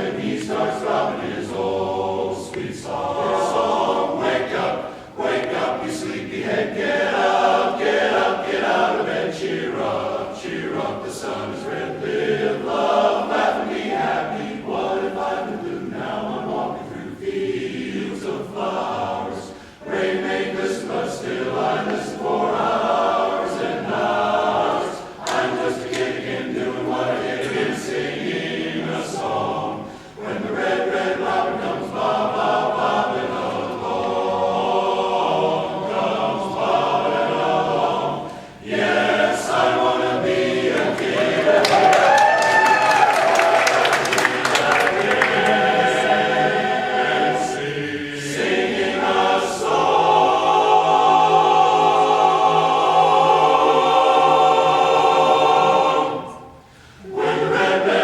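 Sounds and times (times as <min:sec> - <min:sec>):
a cappella choir singing: 0:00.0 - 0:58.0.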